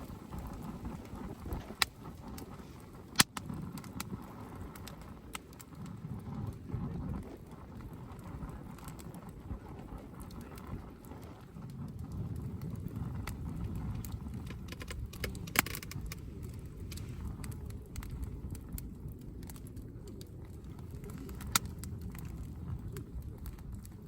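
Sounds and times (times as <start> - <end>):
campfire crackling and popping: 0.0 - 24.0
low steady rumble: 0.0 - 24.0.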